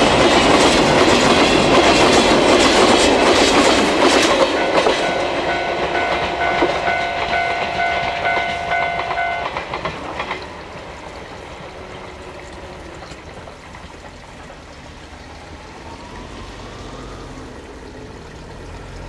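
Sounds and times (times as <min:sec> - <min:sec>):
steady rushing noise: 0:00.0 - 0:11.9
train wheels clacking on rail joints: 0:00.0 - 0:14.6
multi-tone signal: 0:04.6 - 0:09.7.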